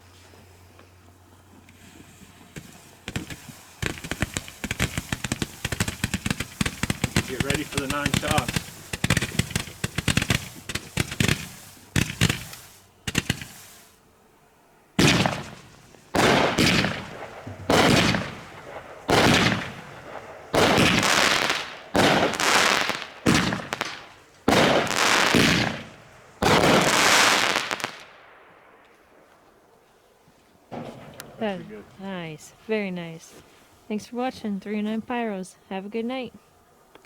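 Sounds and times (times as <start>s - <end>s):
firework pops: 1.5s - 14.0s, 15.0s - 28.1s, 30.7s - 32.1s.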